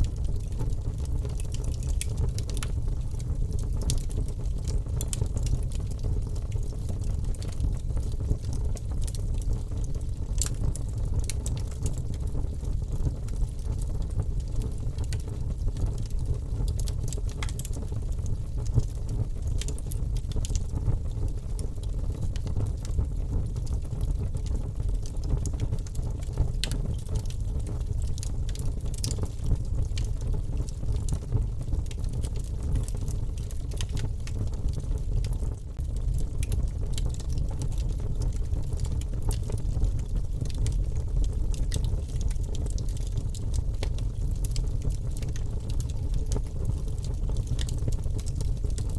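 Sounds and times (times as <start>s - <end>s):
wood fire crackles and pops: 0.0s - 48.9s
fire flames roaring: 24.6s - 48.9s.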